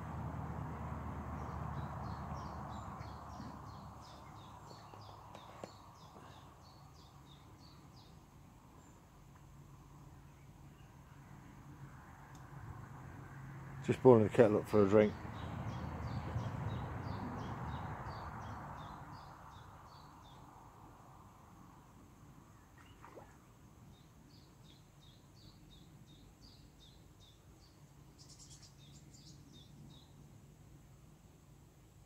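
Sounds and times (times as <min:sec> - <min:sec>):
small bird chirping: 0:01.4 - 0:11.2, 0:22.5 - 0:30.3.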